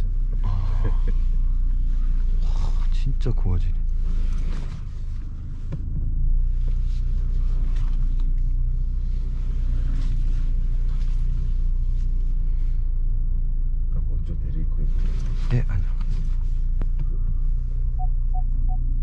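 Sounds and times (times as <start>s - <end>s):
car engine low rumble: 0.0s - 19.0s.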